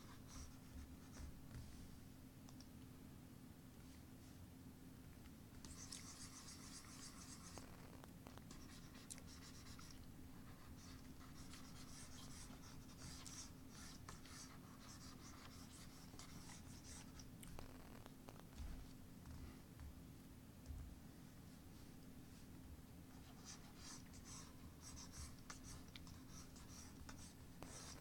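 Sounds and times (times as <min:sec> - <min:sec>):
drawing strokes scratching: 0:05.7 - 0:07.9, 0:08.5 - 0:17.2, 0:23.2 - 0:28.0.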